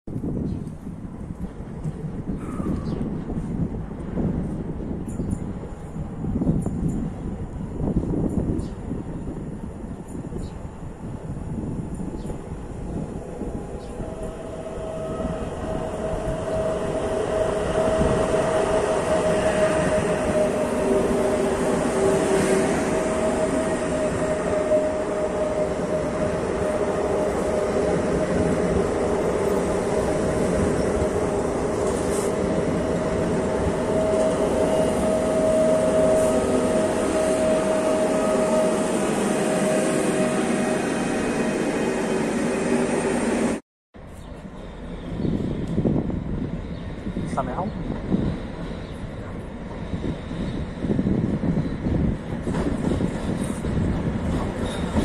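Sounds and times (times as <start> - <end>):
train rumble: 0.1 - 55.0
steady whining tone: 13.2 - 43.6.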